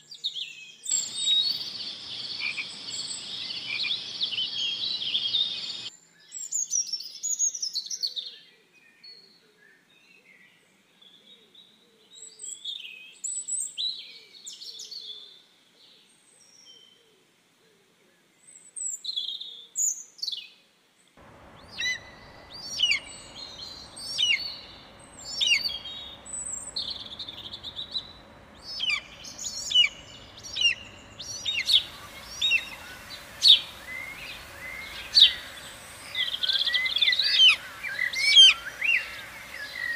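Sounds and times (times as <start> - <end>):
small birds chirping: 0.9 - 7.1, 21.2 - 39.9
faint steady background noise: 8.6 - 39.9.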